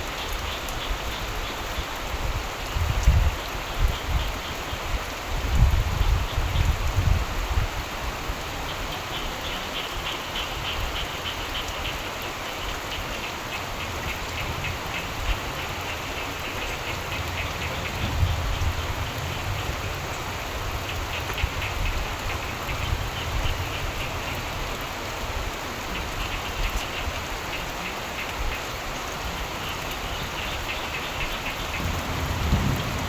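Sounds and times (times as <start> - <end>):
steady rain falling: 0.0 - 33.0
frogs trilling: 8.6 - 25.0, 25.8 - 33.0
low rumble of thunder: 16.6 - 24.1, 31.5 - 33.0.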